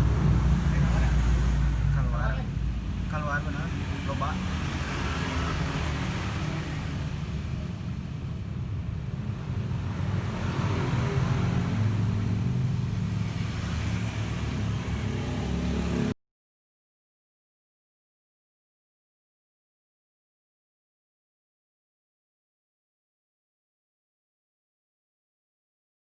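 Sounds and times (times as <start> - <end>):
scooter engine running: 0.0 - 1.4.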